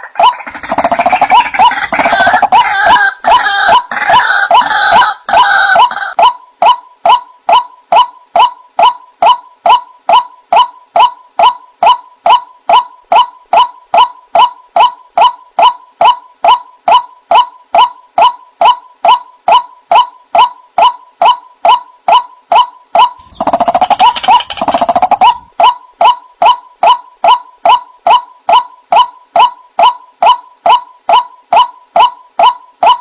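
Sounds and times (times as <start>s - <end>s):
waterhen calling: 0.0s - 6.3s, 23.2s - 25.5s.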